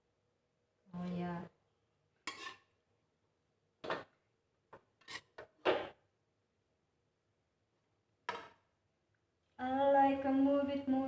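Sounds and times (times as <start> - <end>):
cookware scraping and knocking: 2.3 - 2.7, 3.8 - 6.0.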